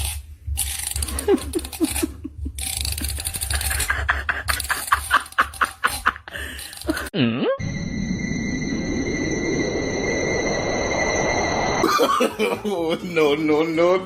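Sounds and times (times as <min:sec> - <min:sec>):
person laughing: 0:01.0 - 0:07.6, 0:11.8 - 0:13.0.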